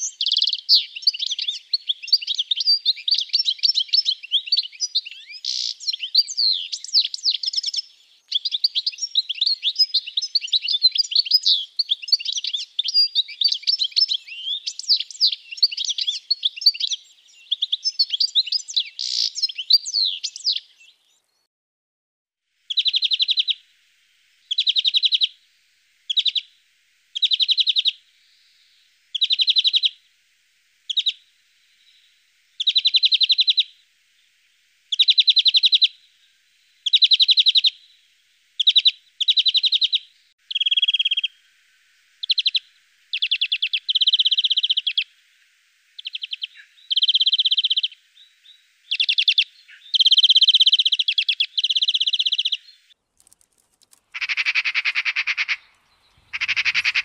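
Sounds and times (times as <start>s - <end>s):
finch singing rapid trills: 29.1s - 30.0s, 38.6s - 41.4s, 42.2s - 45.0s, 46.0s - 52.9s, 54.2s - 57.0s.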